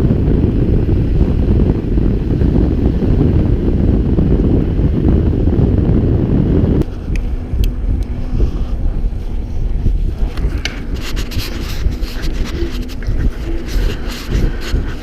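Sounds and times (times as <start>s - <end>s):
bike tyres rumbling on dirt: 0.0s - 15.0s
wind buffeting camera: 0.0s - 15.0s
bike clicks and rattles: 9.6s - 15.0s.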